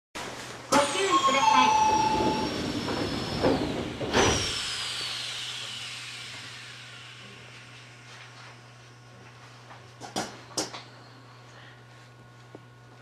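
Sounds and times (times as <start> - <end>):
electrical whine falling in pitch: 0.7 - 4.6
train low hum: 0.7 - 8.5.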